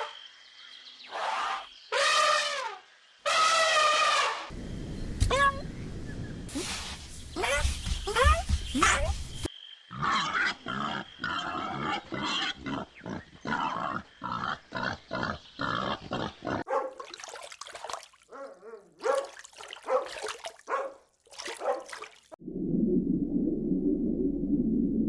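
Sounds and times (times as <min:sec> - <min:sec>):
low rumbling noise: 0:04.6 - 0:07.4, 0:22.4 - 0:25.0.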